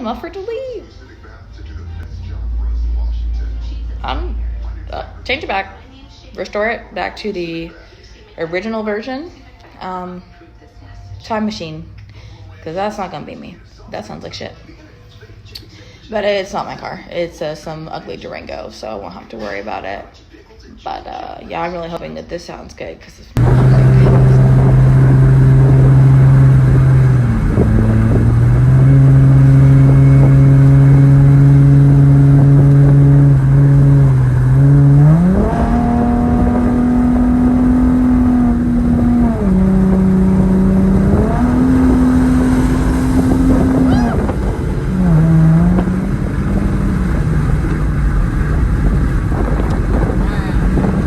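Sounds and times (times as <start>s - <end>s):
car engine revving: 0.0s - 7.8s, 23.4s - 51.0s.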